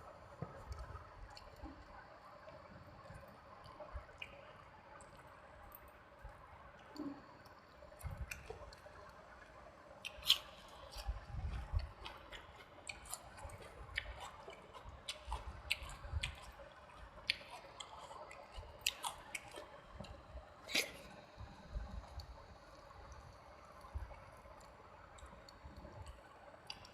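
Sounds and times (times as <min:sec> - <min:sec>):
mouth clicks and smacks: 0:10.0 - 0:16.6, 0:17.2 - 0:22.4
wet chewing: 0:10.0 - 0:22.7.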